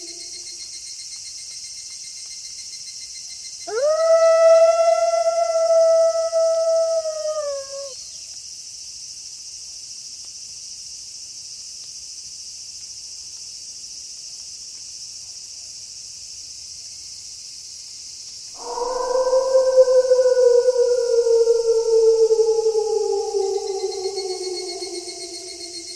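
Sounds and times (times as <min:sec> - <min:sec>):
wolf howling: 0:00.0 - 0:00.5, 0:03.7 - 0:08.0, 0:18.6 - 0:25.9
night insects chirping: 0:00.0 - 0:00.7, 0:03.7 - 0:08.2, 0:18.6 - 0:25.9.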